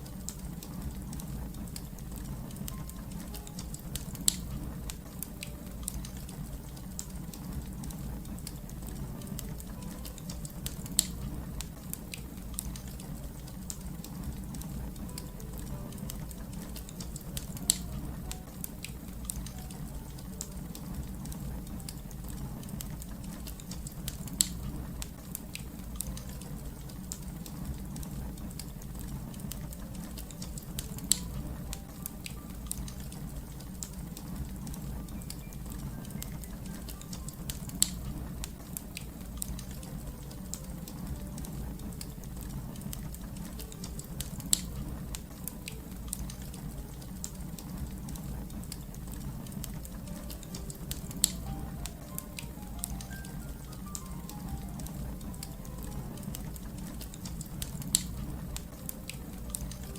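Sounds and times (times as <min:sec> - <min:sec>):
fire crackling: 0:00.0 - 0:59.9.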